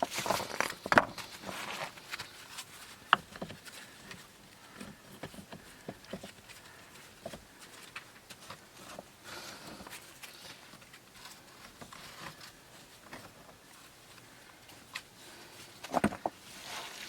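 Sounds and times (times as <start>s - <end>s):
rustles and clicks of handling: 0.0s - 17.0s.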